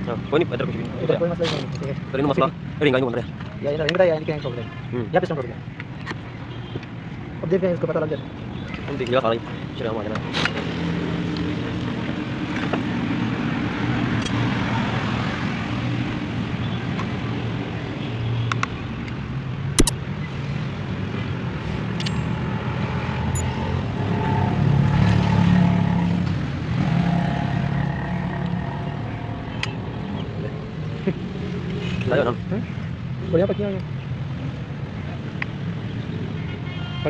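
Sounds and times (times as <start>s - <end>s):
sharp clicks: 19.8s - 20.0s.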